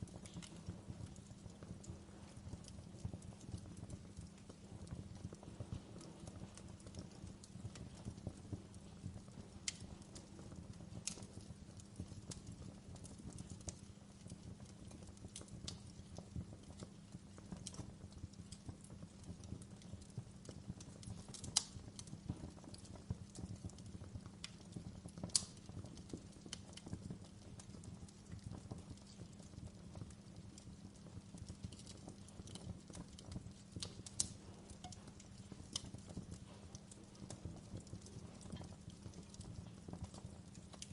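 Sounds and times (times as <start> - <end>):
fire crackling and popping: 0.0 - 40.9.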